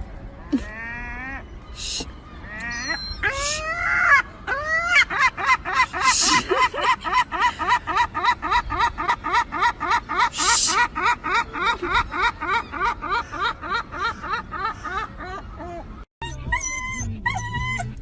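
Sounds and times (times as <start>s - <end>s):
animal calling: 0.5s - 5.2s, 15.8s - 18.0s.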